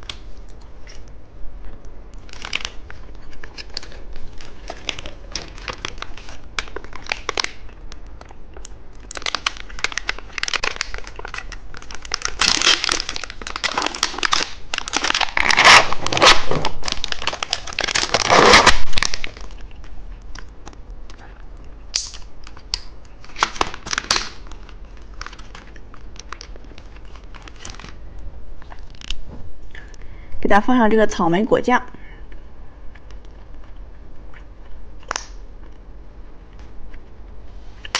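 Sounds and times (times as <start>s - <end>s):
plastic wrapper crinkling: 2.2s - 21.2s, 21.9s - 28.1s.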